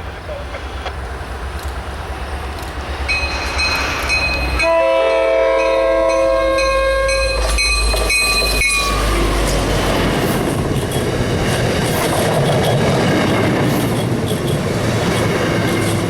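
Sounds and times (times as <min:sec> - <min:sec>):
train rumbling: 0:00.0 - 0:16.0
train horn chord: 0:04.6 - 0:07.4.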